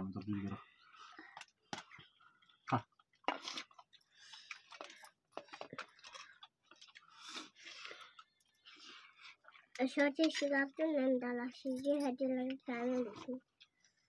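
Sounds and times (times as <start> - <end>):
wet chewing and lip smacking: 1.3 - 9.8.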